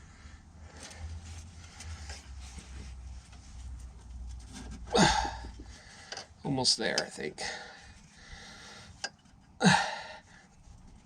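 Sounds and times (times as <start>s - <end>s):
low steady hum: 0.0s - 11.0s
faint handling noises: 0.6s - 9.6s, 10.3s - 11.0s
man grunting: 4.9s - 5.5s, 9.6s - 10.1s.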